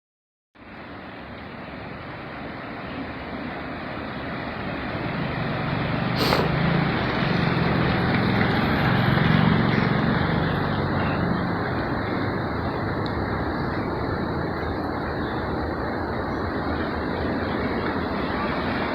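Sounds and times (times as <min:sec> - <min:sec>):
floodwater roaring over dam: 0:00.6 - 0:18.9
brief sharp sound: 0:06.2 - 0:06.6.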